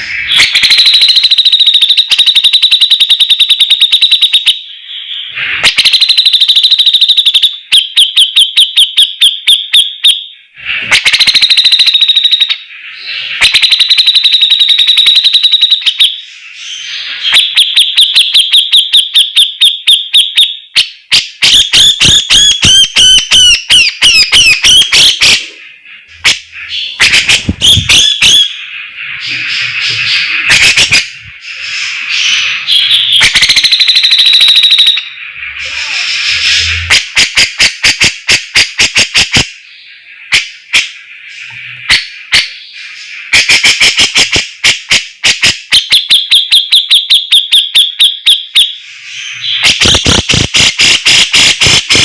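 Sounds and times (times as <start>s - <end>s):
bulbul singing: 0.0s - 37.6s.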